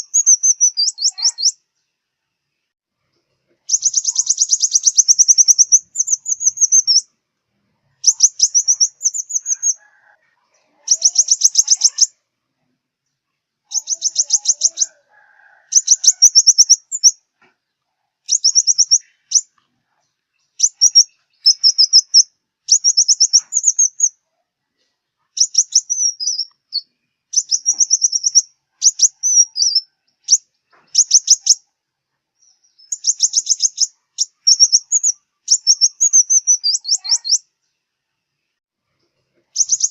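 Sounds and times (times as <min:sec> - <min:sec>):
sunbird singing high trills: 0:00.0 - 0:01.6, 0:03.7 - 0:07.1, 0:08.0 - 0:09.8, 0:10.9 - 0:12.2, 0:13.7 - 0:15.0, 0:15.7 - 0:17.2, 0:18.3 - 0:19.5, 0:20.5 - 0:24.2, 0:25.4 - 0:31.6, 0:32.4 - 0:37.5, 0:39.6 - 0:39.9.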